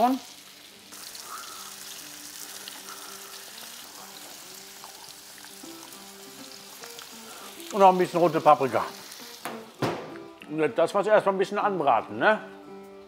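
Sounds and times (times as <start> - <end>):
food sizzling in hot oil: 0.0 - 10.4
background music: 0.0 - 13.0.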